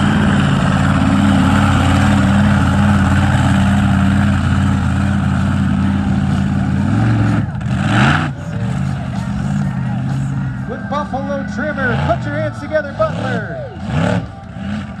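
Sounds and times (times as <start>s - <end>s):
truck engine revving high: 0.0s - 15.0s.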